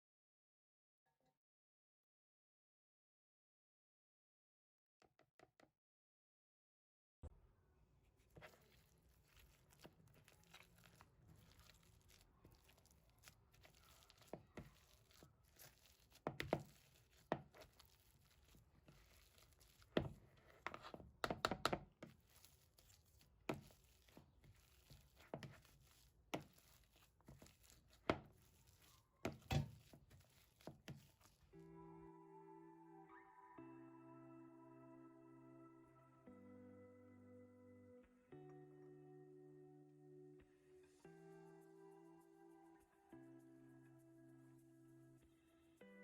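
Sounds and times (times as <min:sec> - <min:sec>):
kitchen knocks and taps: 0:21.2 - 0:21.9.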